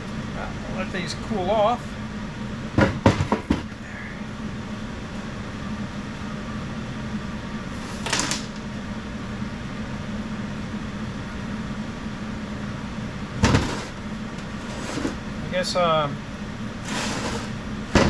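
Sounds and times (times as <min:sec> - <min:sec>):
low machine hum: 0:00.0 - 0:18.0
sharp knocks: 0:13.4 - 0:14.0.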